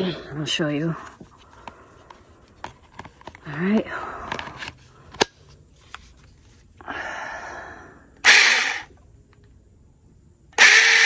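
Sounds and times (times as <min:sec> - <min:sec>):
mini chainsaw running: 0:08.2 - 0:08.9, 0:10.6 - 0:11.0.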